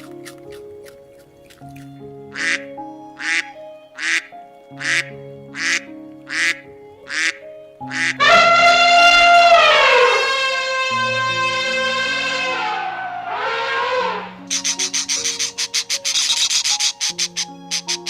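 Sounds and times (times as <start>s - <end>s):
light background music: 0.0s - 18.0s
duck quacking: 2.3s - 2.6s, 3.2s - 18.0s
loud call falling in pitch: 8.2s - 14.4s.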